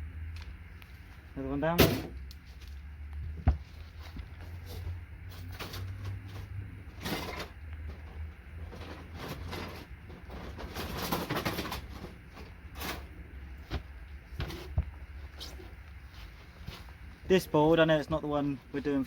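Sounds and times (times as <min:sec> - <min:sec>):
steady low hum: 0:00.0 - 0:19.0
rustling and scraping on workbench: 0:02.5 - 0:17.2.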